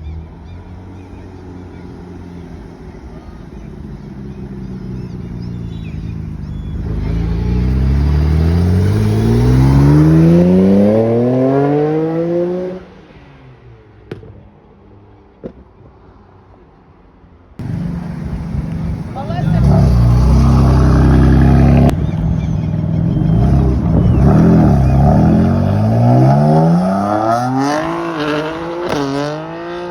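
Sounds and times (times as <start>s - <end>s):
car engine accelerating: 0.8s - 12.9s, 17.6s - 29.9s.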